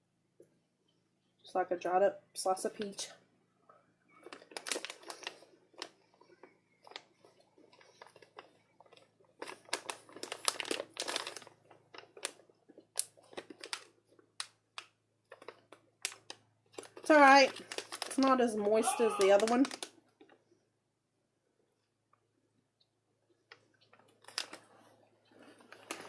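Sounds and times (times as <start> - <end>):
plastic snack bag crinkling: 4.1 - 20.4, 23.5 - 26.0.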